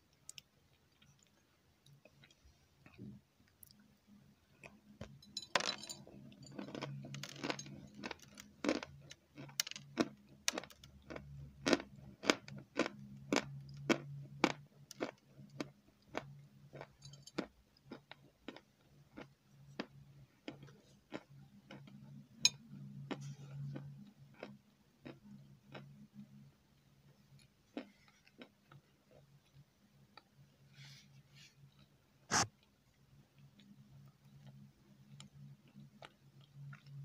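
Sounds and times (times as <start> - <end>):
low steady hum: 0.0 - 37.0
crunchy cookie chewing: 0.1 - 3.9, 4.5 - 30.4, 33.4 - 37.0.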